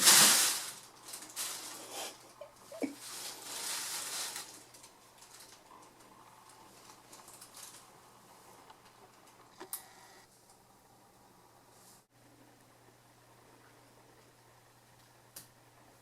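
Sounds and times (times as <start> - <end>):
cats scrabbling and pattering: 0.0 - 6.1.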